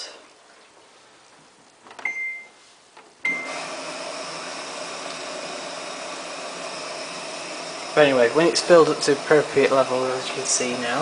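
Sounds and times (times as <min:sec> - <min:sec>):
washing machine beep: 0:02.0 - 0:02.6, 0:03.2 - 0:04.1
water rushing into washing machine: 0:03.3 - 0:11.0.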